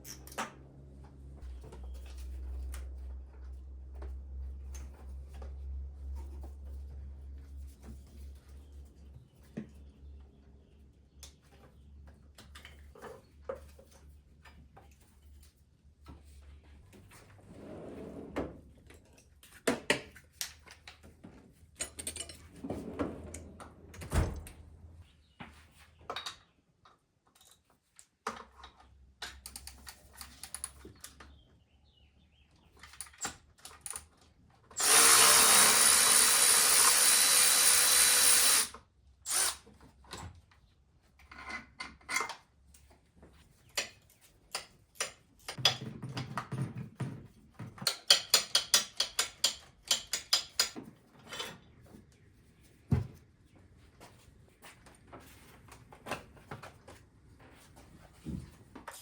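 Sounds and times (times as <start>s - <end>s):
power drill running: 34.8s - 39.6s.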